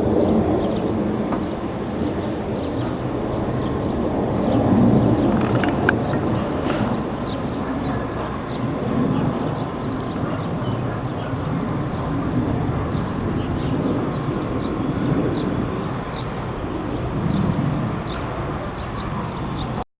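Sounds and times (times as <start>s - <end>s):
jet engines rumbling: 0.0s - 19.8s.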